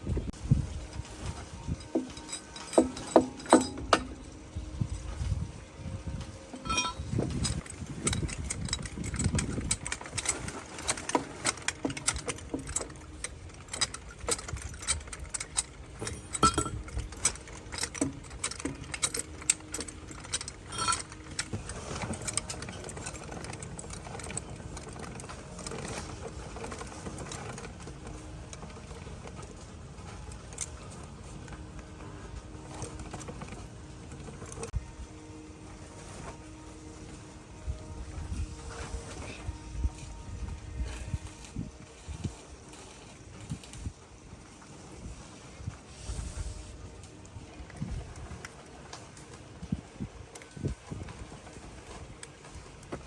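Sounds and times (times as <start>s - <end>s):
metallic tool clinks and knocks: 1.1s - 4.4s, 6.5s - 13.0s, 13.7s - 26.1s.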